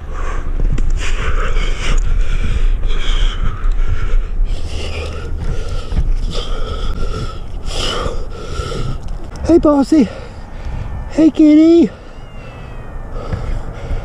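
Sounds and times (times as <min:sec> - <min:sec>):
person breathing hard: 0:00.0 - 0:09.3, 0:10.0 - 0:11.0, 0:13.1 - 0:14.0
low rumble: 0:00.0 - 0:11.4.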